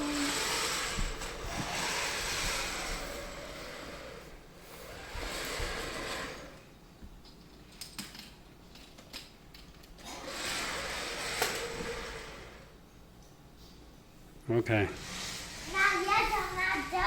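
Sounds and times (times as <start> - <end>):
toy train motor whirring: 0.0 - 4.2, 4.8 - 6.6, 10.0 - 12.7, 15.0 - 16.2.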